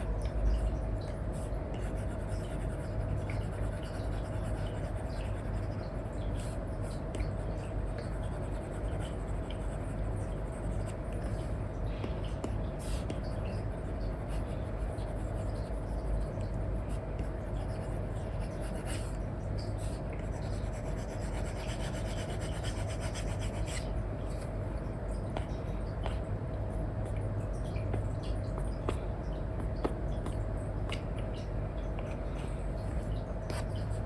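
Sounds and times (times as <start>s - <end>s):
steady low hum: 0.0s - 34.0s
stylus scratching on screen: 12.8s - 24.5s.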